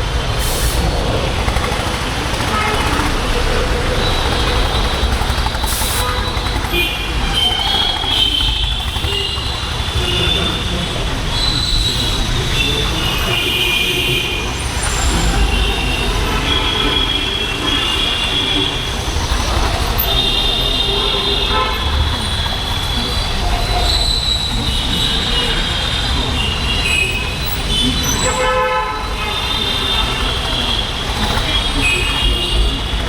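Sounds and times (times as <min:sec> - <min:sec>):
motorcycle engine running: 0:00.0 - 0:13.5, 0:29.2 - 0:33.0
high-pitched squealing from traffic: 0:00.0 - 0:33.0.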